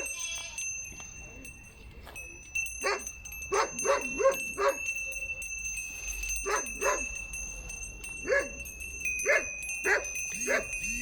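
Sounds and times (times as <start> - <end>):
dog barking: 2.8 - 4.8, 6.4 - 7.1, 8.2 - 8.6, 9.2 - 10.8.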